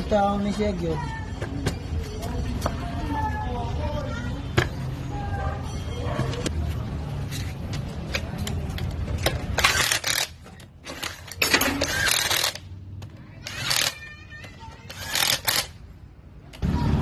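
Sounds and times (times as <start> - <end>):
metal parts clinking and rattling: 8.1 - 12.6.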